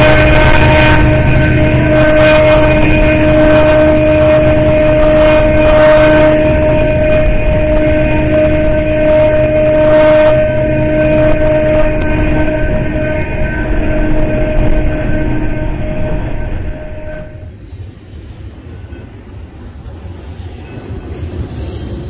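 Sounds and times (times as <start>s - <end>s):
steady high-pitched tone: 0.0s - 17.8s
train wheels rumbling on rail: 0.0s - 22.0s.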